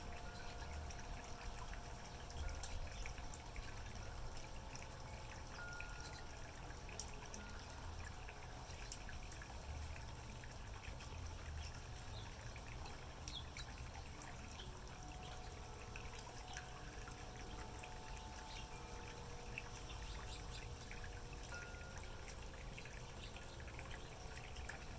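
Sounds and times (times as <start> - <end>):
faint wind chime tones: 0.0 - 24.9
waterfall trickling into pond: 0.0 - 24.9
birds chirping: 11.4 - 24.9.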